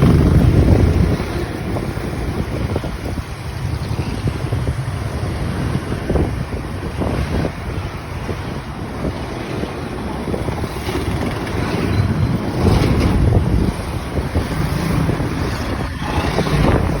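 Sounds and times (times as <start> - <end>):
motorcycle engine: 0.0 - 6.0
road noise: 0.0 - 17.0
wind buffeting microphone: 0.0 - 17.0.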